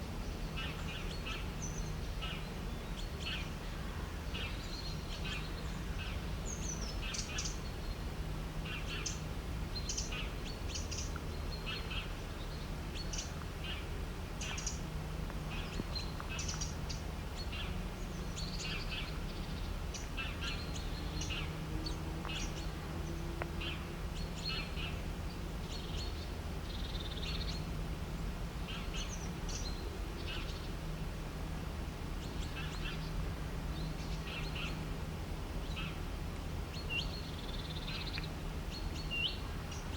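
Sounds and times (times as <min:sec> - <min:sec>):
birds chirping: 0:09.8 - 0:27.7, 0:36.7 - 0:39.9.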